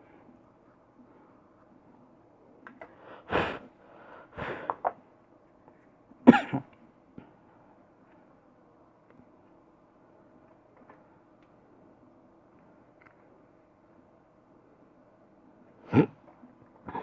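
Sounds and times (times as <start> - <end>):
man coughing: 6.3 - 6.7, 15.9 - 16.2.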